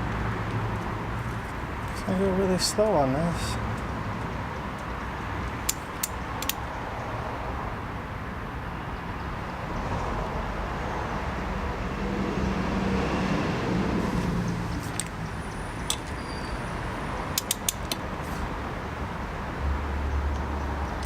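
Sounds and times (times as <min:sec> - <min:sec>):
wrench clicking: 0:05.6 - 0:06.7, 0:17.3 - 0:18.0.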